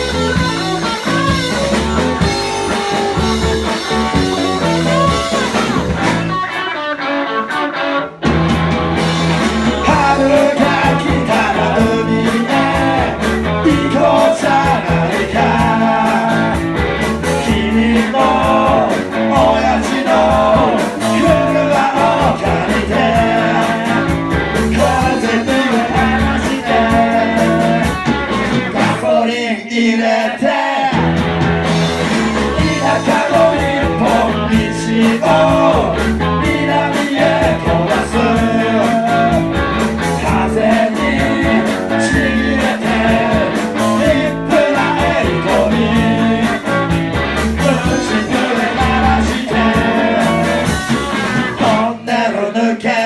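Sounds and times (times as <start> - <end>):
live rock band playing: 0.0 - 29.2, 30.9 - 52.1
person singing: 9.6 - 31.0, 32.3 - 53.0.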